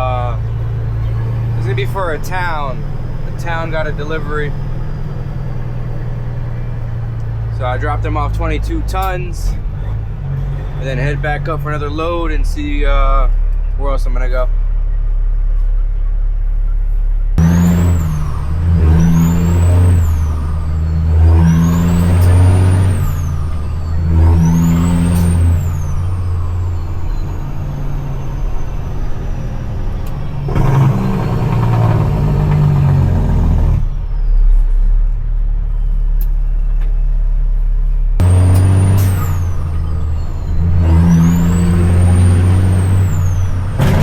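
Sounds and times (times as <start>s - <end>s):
diesel truck engine pulling hard: 0.0s - 44.0s
turbo whistle: 17.4s - 29.5s.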